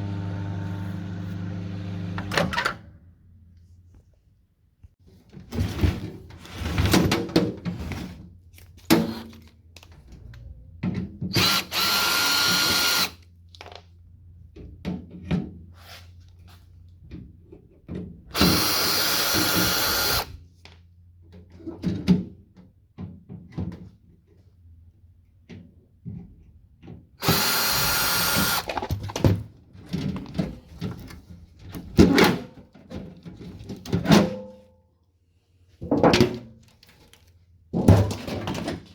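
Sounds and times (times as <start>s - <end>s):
power drill whining: 11.3s - 13.2s, 18.3s - 20.4s, 27.2s - 28.9s.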